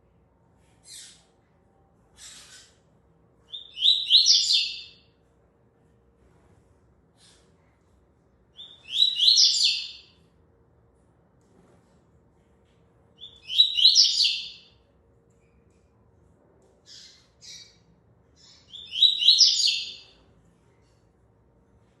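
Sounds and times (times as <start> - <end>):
bird chirps: 3.5 - 5.0, 8.6 - 10.1, 13.2 - 14.8, 16.9 - 17.8, 18.4 - 20.2
bird singing high phrases: 3.5 - 5.1, 8.6 - 10.2, 13.2 - 14.8, 16.9 - 17.8, 18.4 - 20.2.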